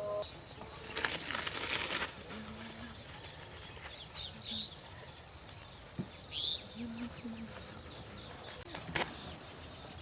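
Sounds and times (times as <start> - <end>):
insect chorus: 0.0 - 10.0.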